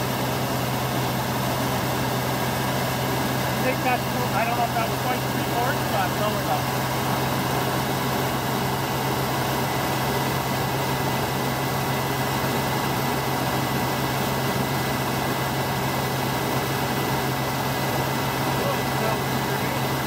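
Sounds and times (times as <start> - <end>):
car engine fast idle: 0.0 - 20.0.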